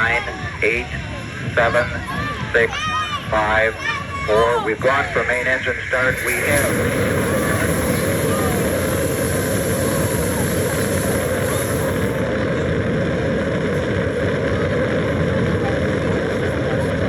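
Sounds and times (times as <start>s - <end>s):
person announcing: 0.0s - 12.0s
rocket engine thrust rumble: 4.8s - 17.0s.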